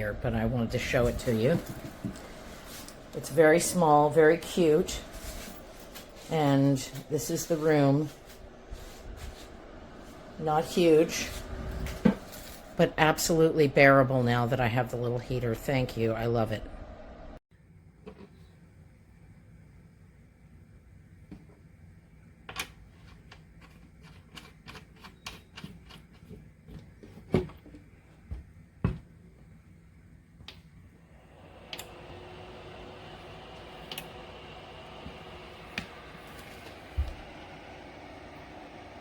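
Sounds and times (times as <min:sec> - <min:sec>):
space heater fan blowing: 0:00.0 - 0:17.4, 0:29.4 - 0:39.0.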